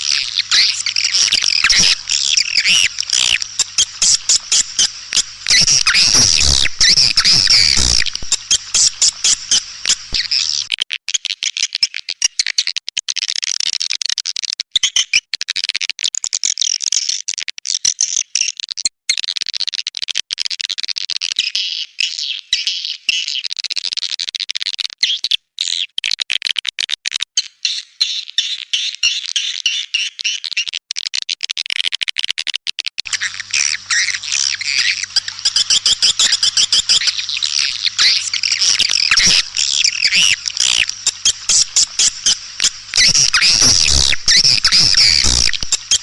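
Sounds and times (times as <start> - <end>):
swiftlets chirping and clicking: 0.0 - 10.7, 33.1 - 46.0.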